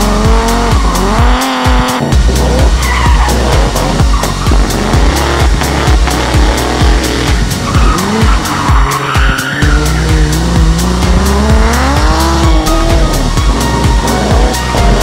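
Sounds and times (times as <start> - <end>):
car engine revving hard: 0.0 - 15.0
music with a steady beat: 0.0 - 15.0
tyre squeal: 0.3 - 15.0.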